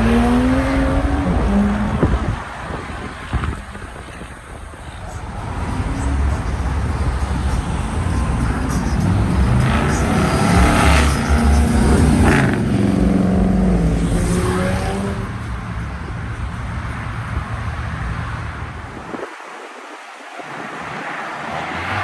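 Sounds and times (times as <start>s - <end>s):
car engine accelerating past: 5.6s - 15.8s.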